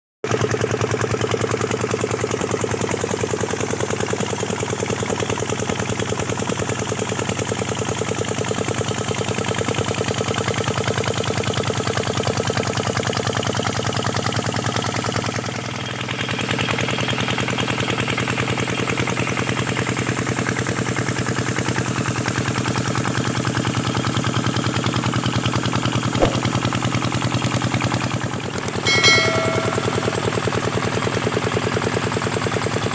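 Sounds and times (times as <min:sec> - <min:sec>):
sharp click: 0:26.2 - 0:26.6.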